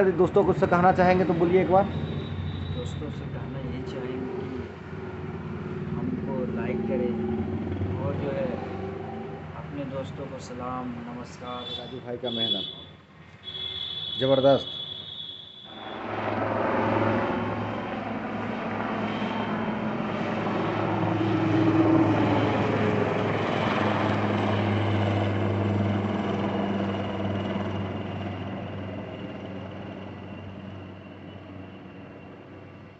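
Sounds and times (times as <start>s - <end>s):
vehicle engine passing by: 0.8s - 11.1s, 15.7s - 25.6s.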